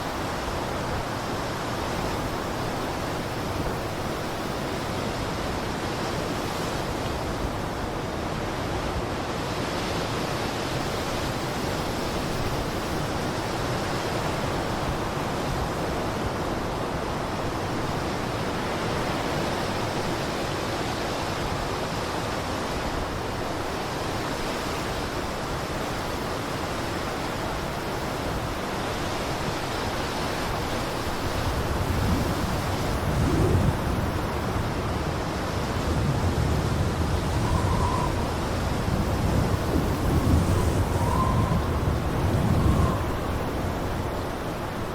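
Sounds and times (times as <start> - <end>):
blizzard wind rushing: 29.8 - 44.9.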